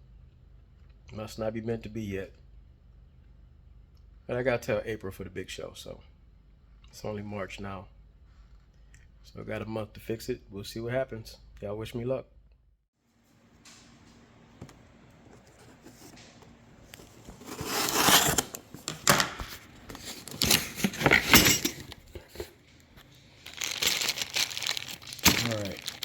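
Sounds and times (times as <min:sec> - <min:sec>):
packaging tearing and crumpling: 0:17.3 - 0:18.9, 0:23.1 - 0:26.0.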